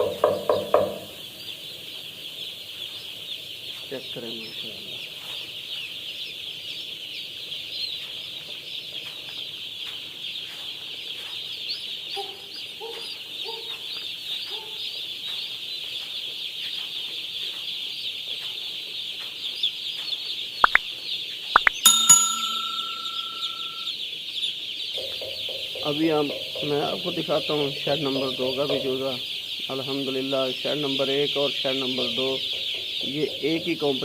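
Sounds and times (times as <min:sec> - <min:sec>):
sharp knocks: 0:00.0 - 0:01.2, 0:25.0 - 0:27.2
chicks peeping: 0:00.0 - 0:34.0
metallic clang ringing: 0:21.8 - 0:23.9.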